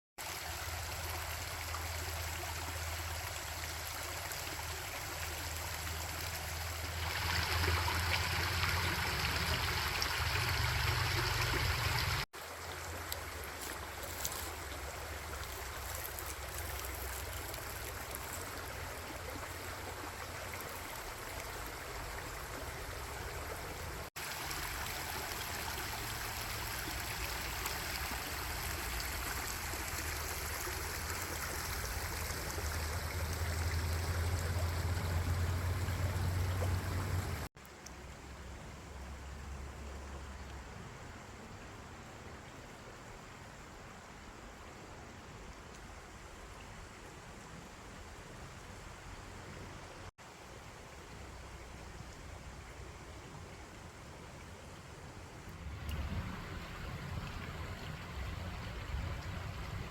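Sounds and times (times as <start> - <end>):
stream rushing water: 0.2 - 59.9.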